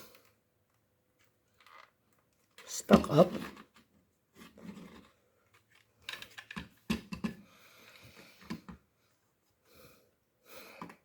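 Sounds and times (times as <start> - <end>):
plastic clicks and knocks: 6.0 - 7.4.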